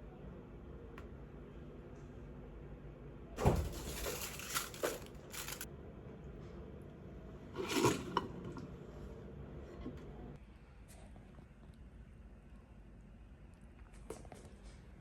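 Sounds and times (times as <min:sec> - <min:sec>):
rustling or crinkling: 0:03.4 - 0:05.7.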